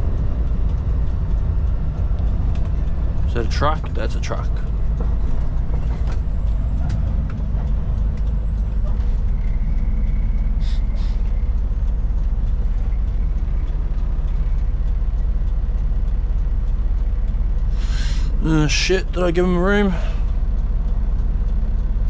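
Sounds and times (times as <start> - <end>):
road noise: 0.0 - 22.0
truck engine droning: 0.0 - 22.0.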